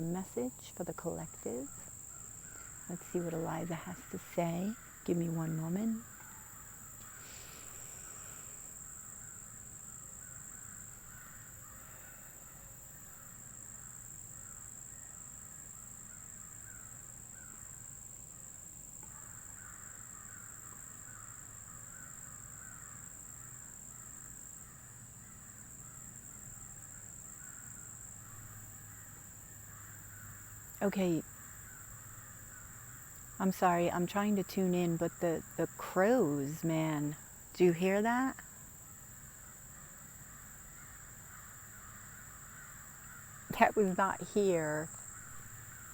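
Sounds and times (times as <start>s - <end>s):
crows cawing: 2.1s - 3.0s, 6.0s - 15.0s, 19.1s - 30.7s, 31.3s - 33.4s, 38.9s - 43.5s, 44.9s - 45.9s.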